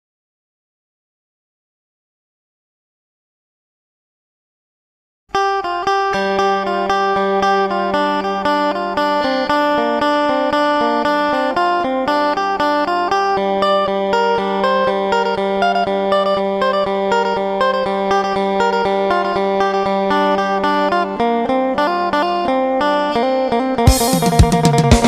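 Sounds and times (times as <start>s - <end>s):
plucked guitar notes: 5.3s - 25.0s.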